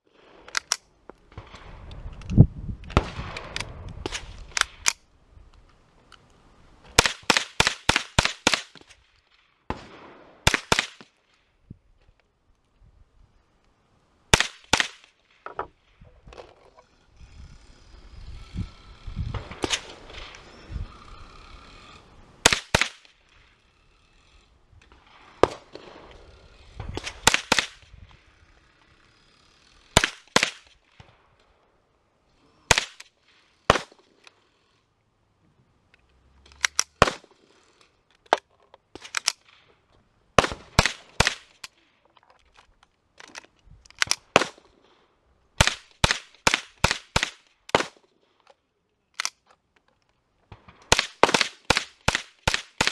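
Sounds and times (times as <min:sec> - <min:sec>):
gunshots: 0:22.4 - 0:23.2, 0:25.2 - 0:27.8, 0:30.0 - 0:30.7, 0:32.7 - 0:33.0, 0:33.7 - 0:34.0, 0:36.9 - 0:37.3, 0:40.4 - 0:41.6, 0:50.5 - 0:52.9.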